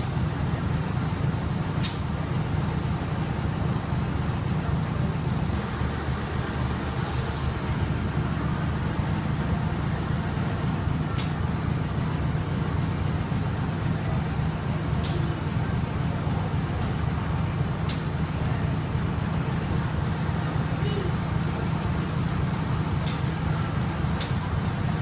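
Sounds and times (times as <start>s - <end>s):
train carriage rumble: 0.0s - 25.0s
short sharp hisses: 7.0s - 7.7s.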